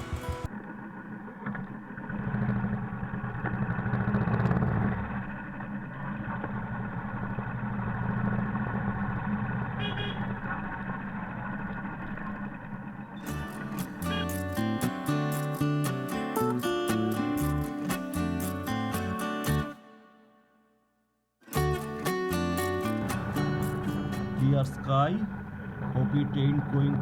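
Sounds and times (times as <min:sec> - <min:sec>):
motorcycle engine riding off: 0:00.0 - 0:00.5, 0:02.1 - 0:09.7.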